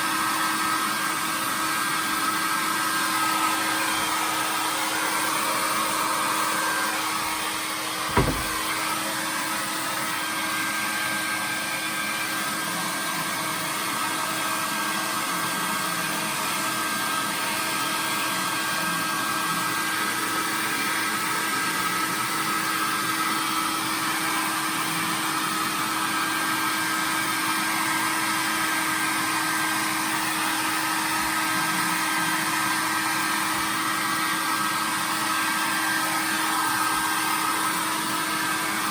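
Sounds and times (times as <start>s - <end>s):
hair dryer blowing: 0.0s - 38.9s
short thump: 8.1s - 8.8s.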